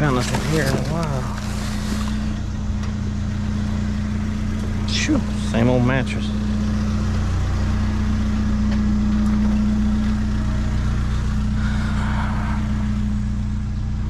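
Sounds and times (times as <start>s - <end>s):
truck engine droning: 0.0s - 14.0s.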